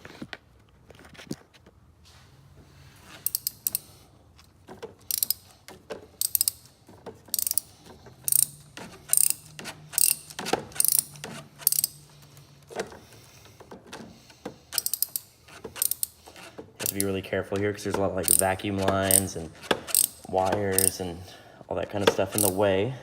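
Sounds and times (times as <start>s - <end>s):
socket ratchet clicking: 3.2s - 4.0s, 5.0s - 12.3s, 14.5s - 21.1s, 22.1s - 22.6s.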